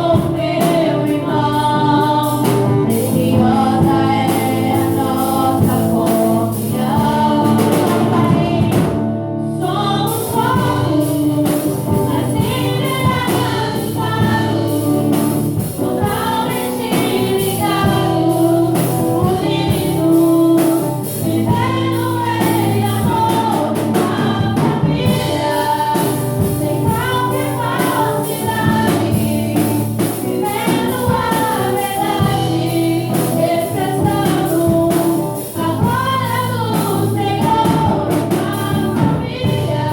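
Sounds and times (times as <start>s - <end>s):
gospel singing: 0.0s - 39.9s.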